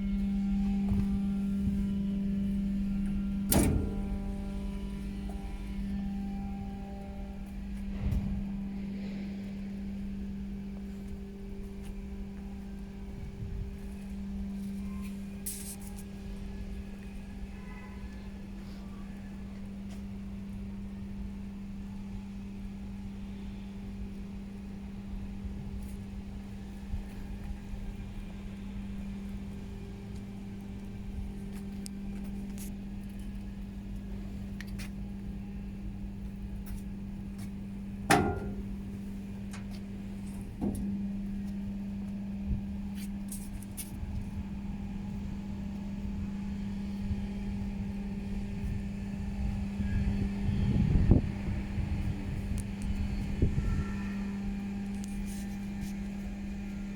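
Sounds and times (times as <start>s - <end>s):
truck engine idling: 0.0s - 14.6s, 32.0s - 43.5s
small knock: 38.1s - 38.8s
sharp metallic clank: 38.1s - 39.0s.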